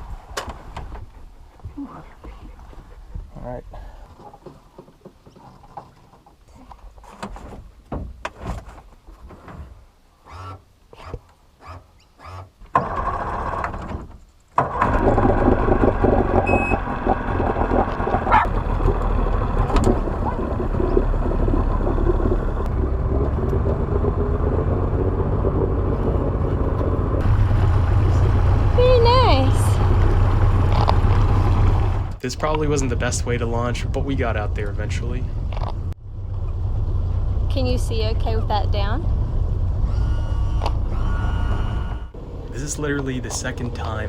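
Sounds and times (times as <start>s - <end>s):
knocks and handling clatter: 4.1s - 9.8s
outboard motor running loudly: 14.8s - 32.7s.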